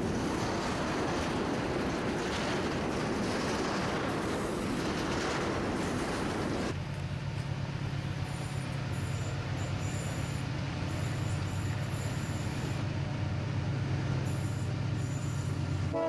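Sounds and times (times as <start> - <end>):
diesel locomotive drone: 0.0 - 16.0
freight train rumbling: 0.0 - 16.0
rail wheels squealing: 8.0 - 12.8, 14.2 - 16.0.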